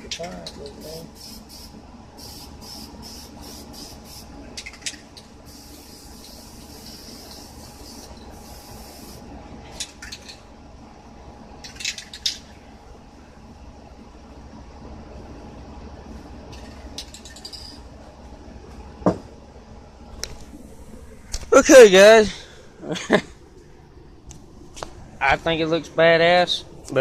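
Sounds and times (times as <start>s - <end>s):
spray paint can hissing: 0.8s - 9.3s.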